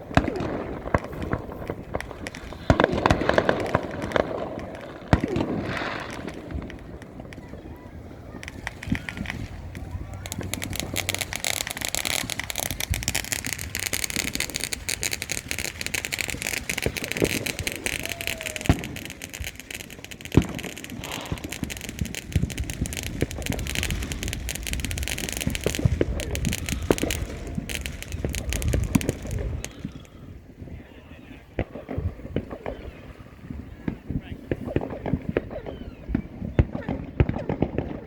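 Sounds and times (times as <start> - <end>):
loud firework bangs: 0.0 - 30.8, 31.5 - 38.0
fireworks crackling: 0.0 - 38.0.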